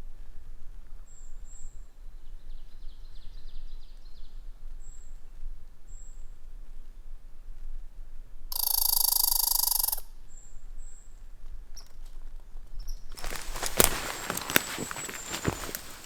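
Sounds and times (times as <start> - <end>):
footsteps on forest floor: 13.2 - 16.0.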